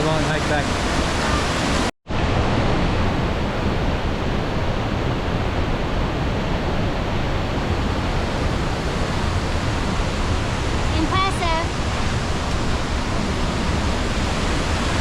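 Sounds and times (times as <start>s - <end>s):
waterfall rushing: 0.0s - 1.9s, 7.6s - 15.0s.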